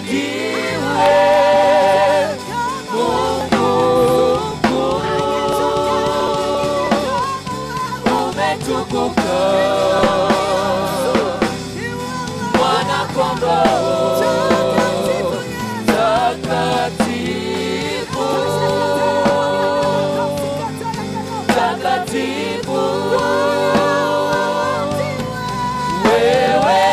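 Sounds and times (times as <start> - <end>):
drum kit and band: 0.0 - 26.9
voices singing with vibrato: 0.0 - 26.9.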